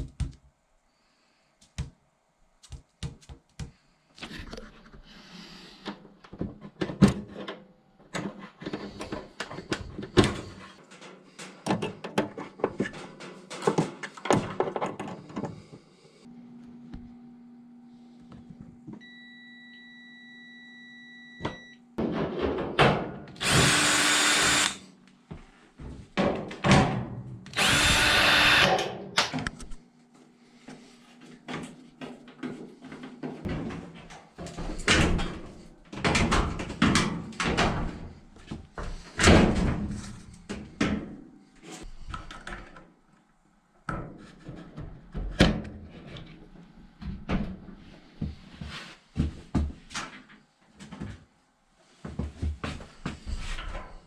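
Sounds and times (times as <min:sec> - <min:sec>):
power drill running: 0:23.4 - 0:24.8, 0:27.6 - 0:28.7.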